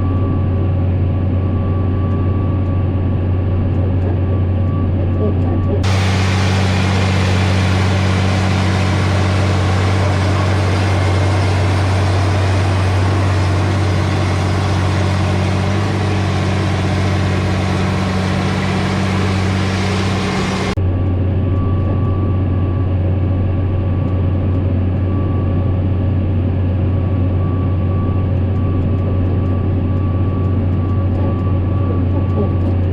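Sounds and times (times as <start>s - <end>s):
faint steady whine: 5.8s - 20.8s
tractor engine humming: 5.8s - 20.8s.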